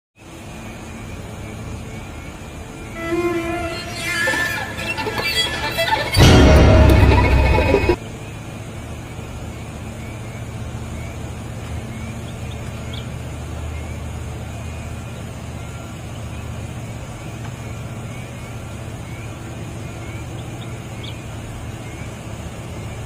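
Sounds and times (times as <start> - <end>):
heavy diesel engine running: 0.6 - 23.0
music: 3.0 - 8.0.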